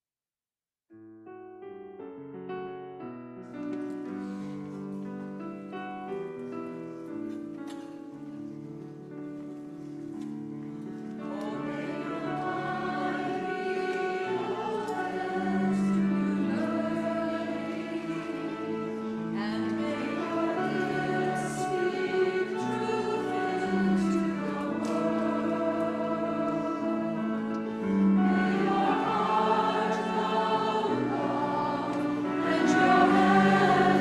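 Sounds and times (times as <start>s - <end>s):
piano accompaniment: 1.0s - 34.0s
group of voices singing: 11.2s - 34.0s.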